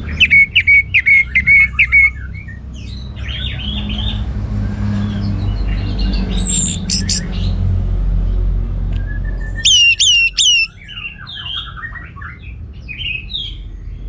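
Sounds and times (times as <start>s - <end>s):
thrush singing whistled notes: 6.3s - 7.3s, 9.1s - 10.8s.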